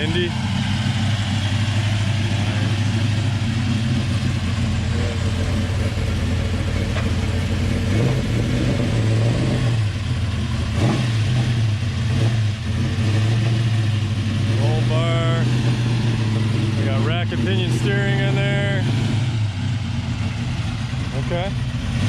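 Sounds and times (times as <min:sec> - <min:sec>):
car engine idling loudly: 0:00.0 - 0:22.0
car engine revving: 0:00.0 - 0:22.0.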